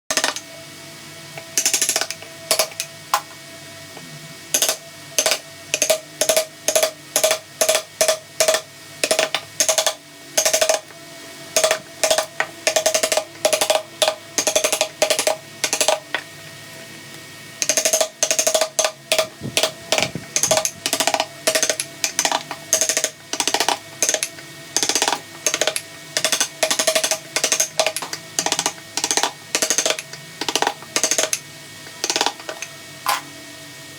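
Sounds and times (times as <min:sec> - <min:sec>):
mallet striking chisel: 0:11.6 - 0:16.0, 0:17.6 - 0:32.7.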